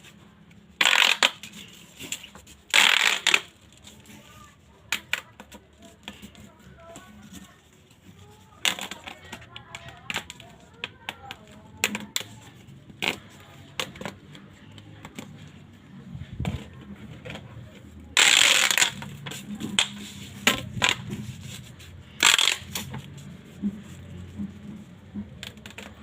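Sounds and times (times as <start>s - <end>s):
loud plastic crunches: 0.7s - 4.3s, 18.1s - 24.6s
plastic toy crunchy clicks: 0.8s - 1.5s, 2.7s - 3.5s, 18.2s - 19.2s, 22.2s - 22.9s.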